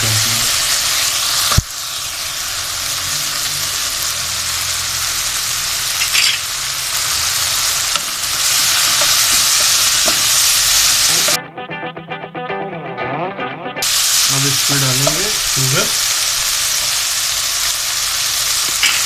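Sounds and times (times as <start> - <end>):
food sizzling in hot oil: 0.0 - 11.4, 13.8 - 19.0
music: 11.0 - 15.3.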